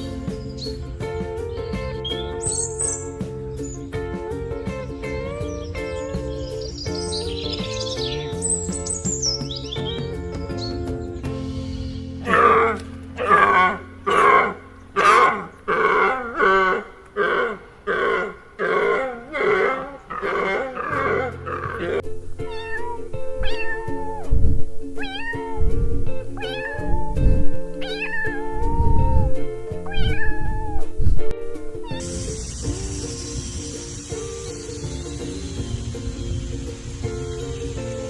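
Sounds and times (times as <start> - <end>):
heavy low thumps: 0.0 - 22.1
background music: 0.0 - 38.0
animal calling harshly: 12.2 - 22.0.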